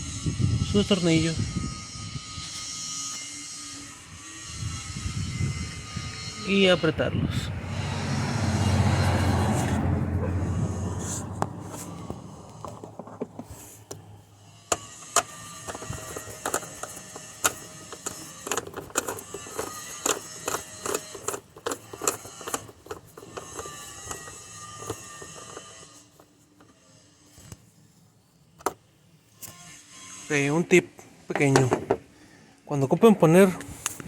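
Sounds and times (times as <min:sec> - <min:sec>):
metallic clicks of screwing tool: 0:14.7 - 0:25.9.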